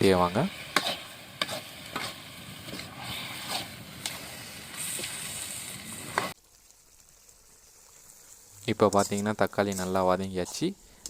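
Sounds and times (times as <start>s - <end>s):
tomatoes sizzling in a pan: 0.0s - 11.0s
spatula knocking and scraping pan: 0.7s - 3.7s.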